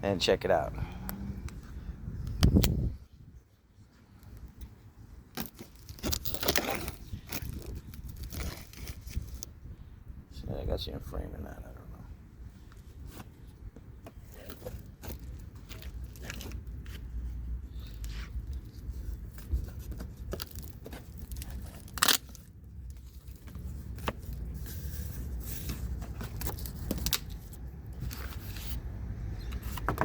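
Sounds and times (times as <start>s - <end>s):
cardboard tearing and crinkling: 5.4s - 9.5s, 14.2s - 28.8s.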